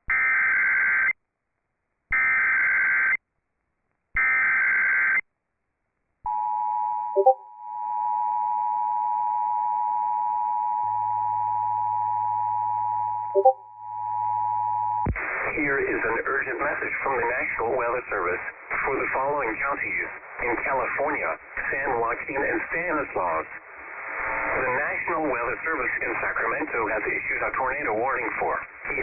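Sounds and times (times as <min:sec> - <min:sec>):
additional tone: 0:07.2 - 0:07.5, 0:13.4 - 0:14.2
two-tone alarm signal: 0:07.2 - 0:15.0.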